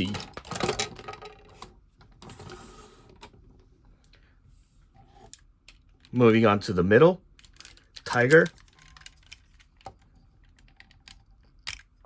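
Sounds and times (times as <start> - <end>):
plastic toy parts clicking: 7.4 - 12.0.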